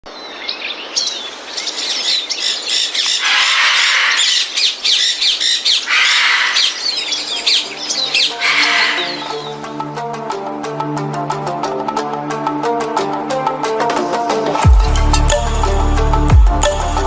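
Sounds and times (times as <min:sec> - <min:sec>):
sparrows chirping: 0:00.0 - 0:09.7
hissy bird squawking: 0:00.2 - 0:09.6
music: 0:07.2 - 0:17.0.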